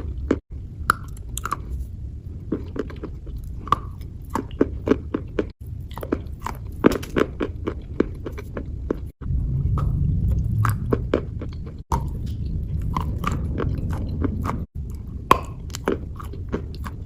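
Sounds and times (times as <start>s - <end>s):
wet crunching and crackling: 2.5s - 17.0s
low rumble: 5.6s - 17.0s.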